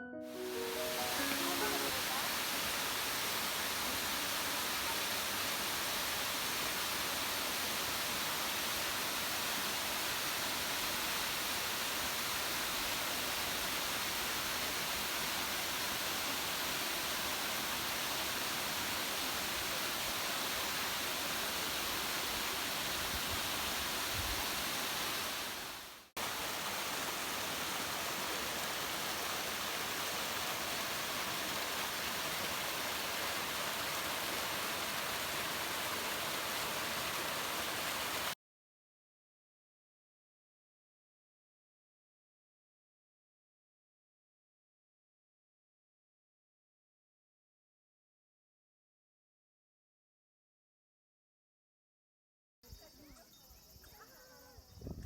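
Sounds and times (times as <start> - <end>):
waterfall rushing: 0.0 - 38.4.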